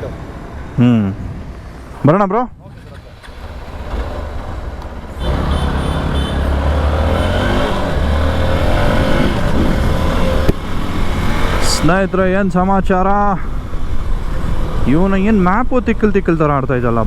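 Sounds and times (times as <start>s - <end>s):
motorcycle engine rumble: 0.0s - 15.4s.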